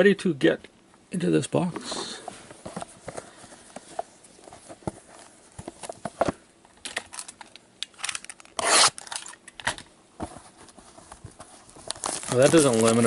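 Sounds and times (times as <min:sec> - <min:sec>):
wrapping ripping: 0:07.1 - 0:09.4, 0:11.6 - 0:13.0.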